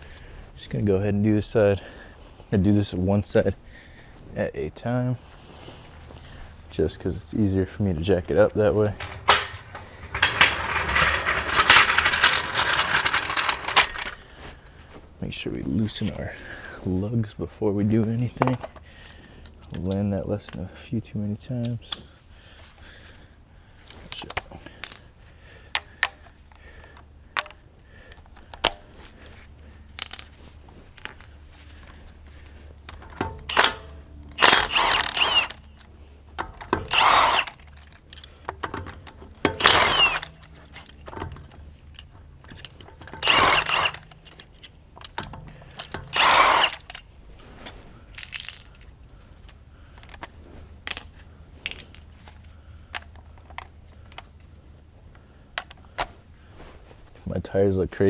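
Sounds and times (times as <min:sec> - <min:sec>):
metallic clinks and clicks: 0:08.8 - 0:14.2, 0:30.0 - 0:31.4, 0:36.6 - 0:47.0.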